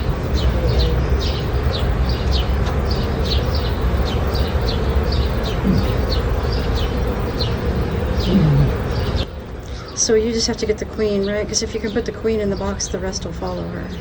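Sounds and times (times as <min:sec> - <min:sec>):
small bird chirping: 0:00.0 - 0:14.0
bee swarm buzzing: 0:04.7 - 0:09.2.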